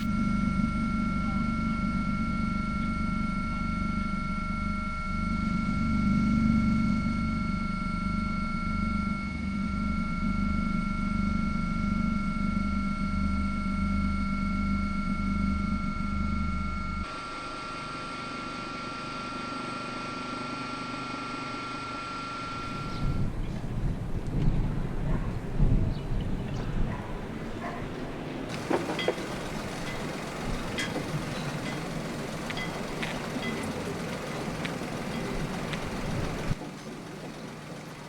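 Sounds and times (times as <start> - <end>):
steady whining tones: 28.2 - 38.0
low pulsing mechanical rumble: 28.5 - 38.0.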